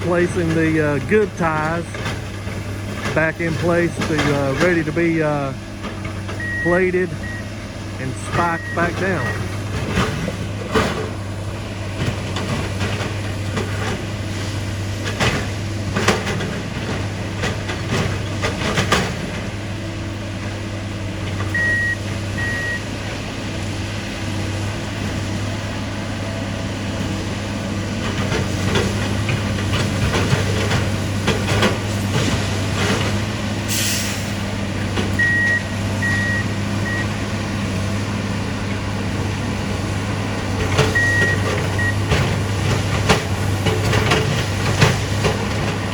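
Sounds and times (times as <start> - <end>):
diesel engines running: 0.0 - 45.9
warning beeper: 6.4 - 9.4.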